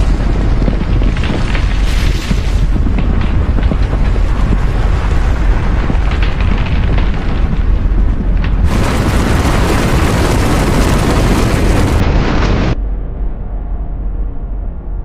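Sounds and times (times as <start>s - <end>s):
blizzard wind roaring: 0.0s - 15.0s.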